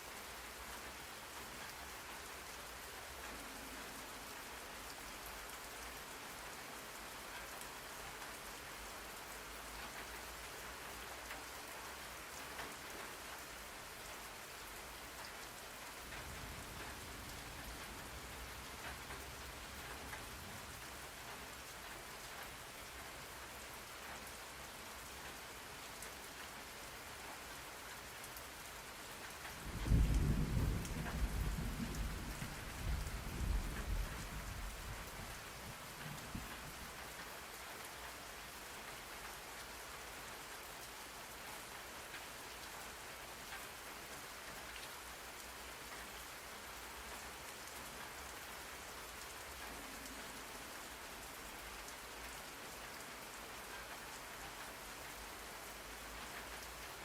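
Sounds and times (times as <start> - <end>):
steady rain: 0.0 - 57.0
thunder rumble: 29.7 - 36.8.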